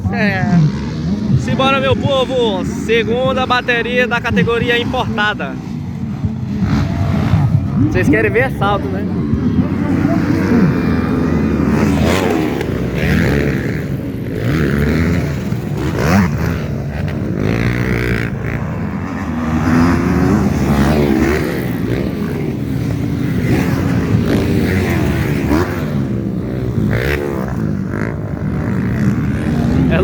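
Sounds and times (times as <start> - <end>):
motocross bikes revving: 0.0 - 30.0.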